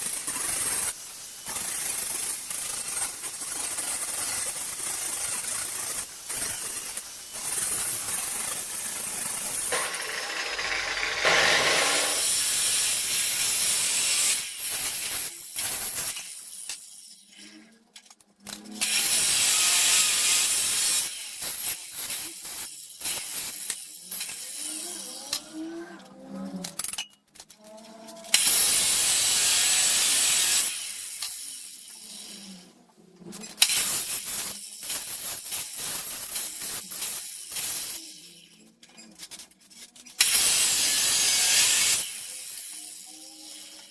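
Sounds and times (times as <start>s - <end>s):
power tool grinding: 9.7s - 12.7s.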